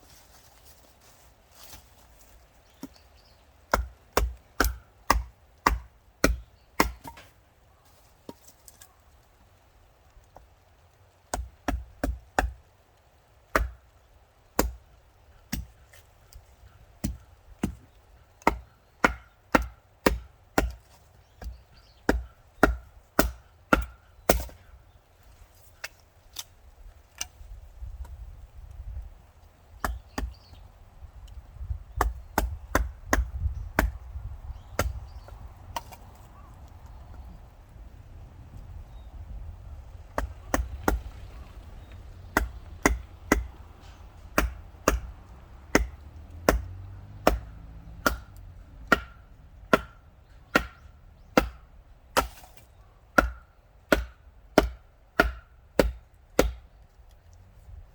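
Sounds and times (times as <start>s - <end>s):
handling and scuffling: 0.0s - 2.7s
wood chopping strikes: 3.6s - 7.4s, 11.2s - 12.7s, 13.5s - 13.9s, 14.6s - 14.8s, 15.4s - 16.1s, 16.7s - 24.7s, 29.8s - 30.6s, 31.9s - 36.1s, 40.1s - 41.2s, 42.2s - 56.7s.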